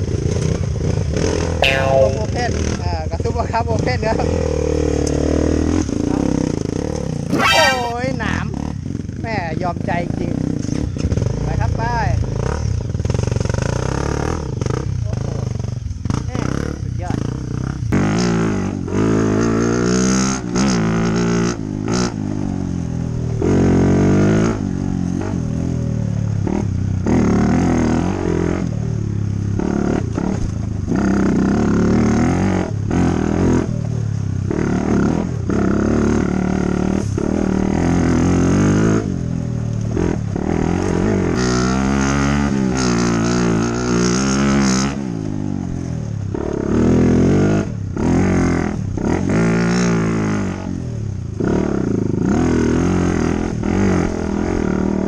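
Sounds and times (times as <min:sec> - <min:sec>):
dirt bike engine revving: 0:07.3 - 0:08.1.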